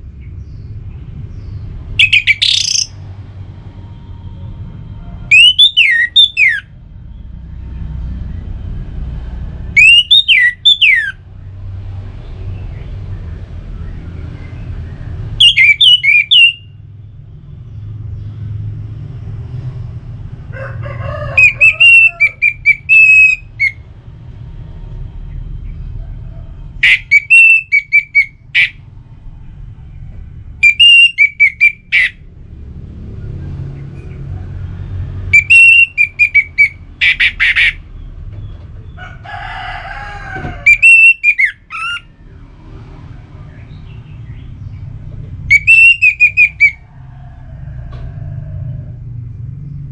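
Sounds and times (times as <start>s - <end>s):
thrush singing whistled notes: 2.0s - 3.0s, 5.3s - 7.3s, 9.7s - 11.2s, 15.4s - 16.8s, 21.4s - 23.9s, 26.8s - 28.8s, 30.6s - 32.2s, 35.3s - 37.8s, 40.7s - 42.1s, 45.5s - 46.9s.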